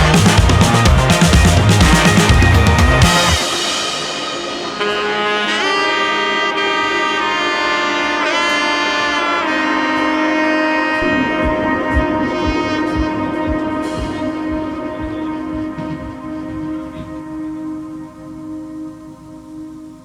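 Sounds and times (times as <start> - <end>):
low beat: 0.0 - 6.7, 11.0 - 18.3
melodic lead line: 0.0 - 8.5.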